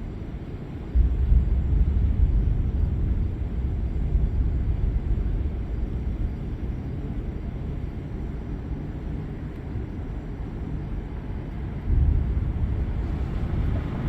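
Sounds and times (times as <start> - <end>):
thunder rumbling: 0.9 - 6.7, 11.8 - 14.0.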